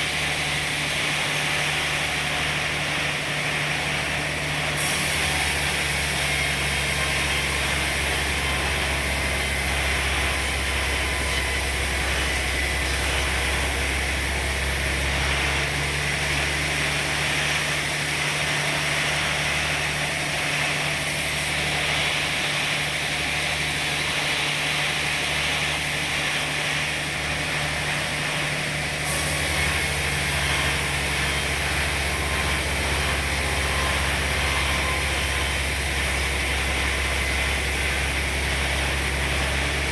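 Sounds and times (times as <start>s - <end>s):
saw whirring: 26.5s - 39.9s.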